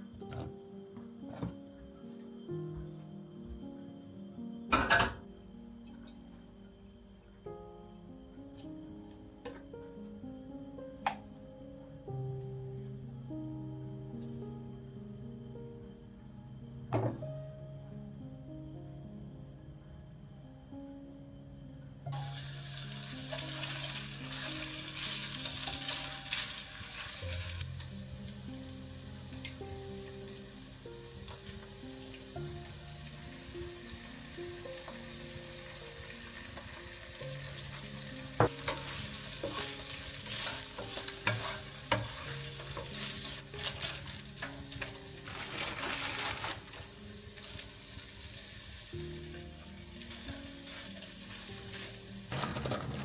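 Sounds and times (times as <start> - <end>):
food sizzling in a pan: 22.1 - 53.0.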